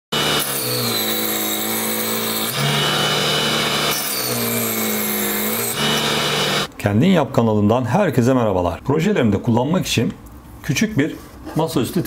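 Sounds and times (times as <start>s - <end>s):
table saw motor hum: 0.1s - 6.7s.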